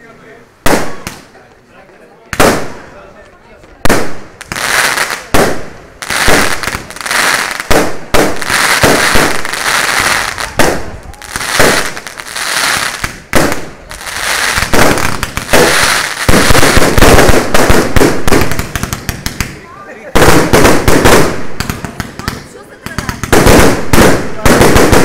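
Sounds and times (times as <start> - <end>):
crackling firework sparks falling: 3.9 - 25.0.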